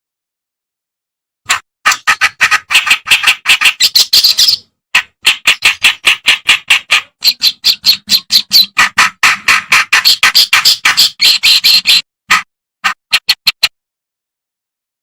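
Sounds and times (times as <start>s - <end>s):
warbler harsh chattering song: 1.9s - 13.7s.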